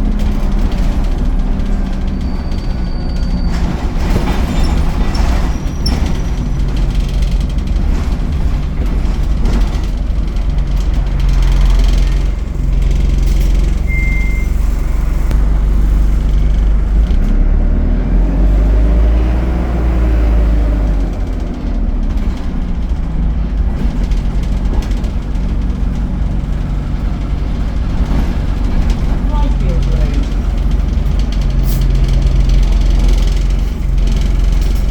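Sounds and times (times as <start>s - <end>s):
bus engine drone: 0.0s - 34.9s
bus engine whine: 0.0s - 34.9s
short high beep: 13.8s - 15.3s.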